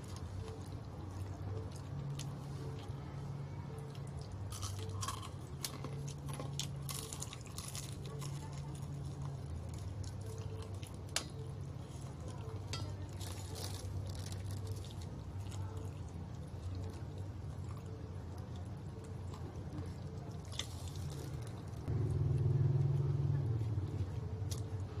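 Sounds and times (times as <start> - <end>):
low hum: 0.0 - 25.0
chewing crispy chicken skin: 3.7 - 21.9, 23.6 - 25.0.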